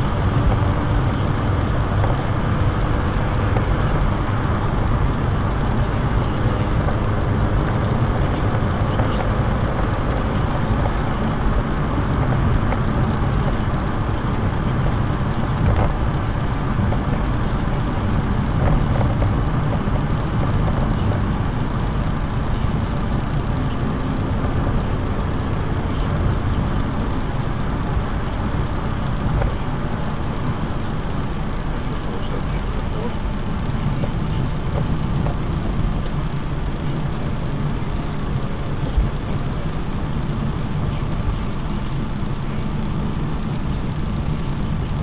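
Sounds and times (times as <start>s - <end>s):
car road and engine noise: 0.0s - 45.0s.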